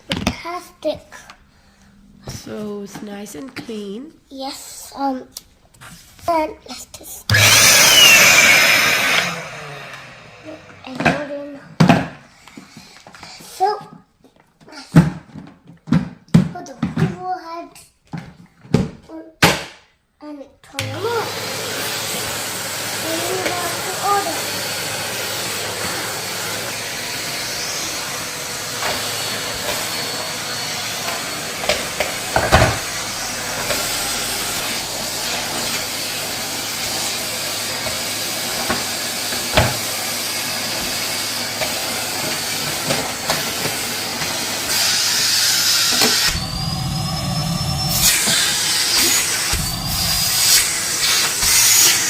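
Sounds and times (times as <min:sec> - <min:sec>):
vacuum cleaner running: 0:07.3 - 0:11.4, 0:20.8 - 0:52.0.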